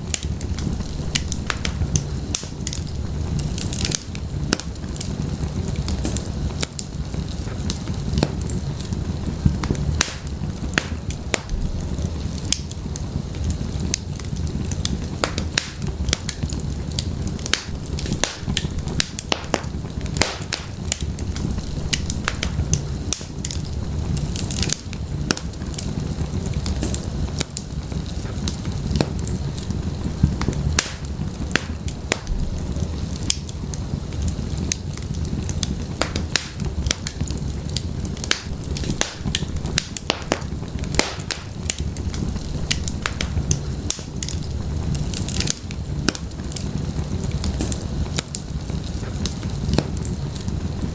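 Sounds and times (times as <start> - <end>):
firewood crackling: 0.0 - 50.9.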